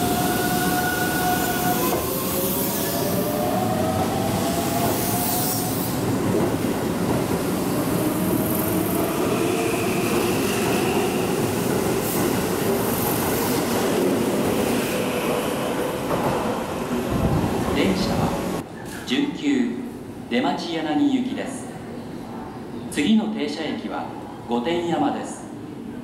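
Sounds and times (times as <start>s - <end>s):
train wheels rumbling on rail: 0.0s - 18.7s.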